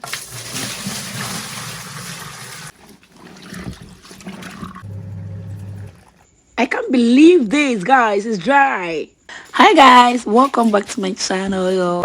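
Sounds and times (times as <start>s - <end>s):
water rushing into washing machine: 0.0s - 6.2s
irregular knocks and rustles: 2.7s - 5.9s.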